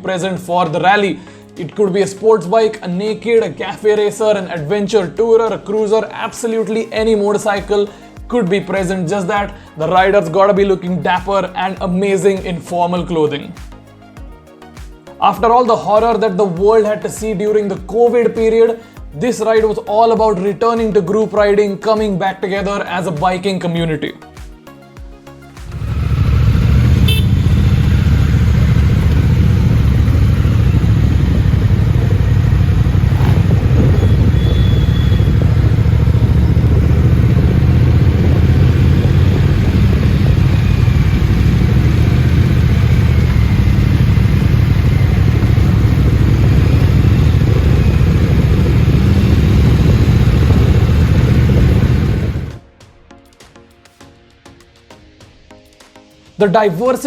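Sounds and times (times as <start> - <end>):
motorcycle engines rumbling: 25.6 - 52.6.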